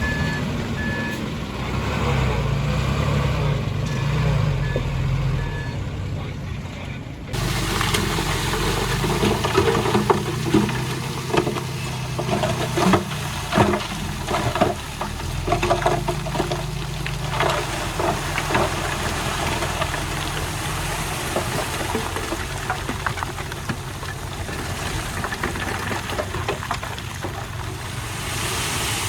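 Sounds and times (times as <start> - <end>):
diesel engine running: 0.0 - 29.0
clatter and knocks of stones: 7.3 - 28.8.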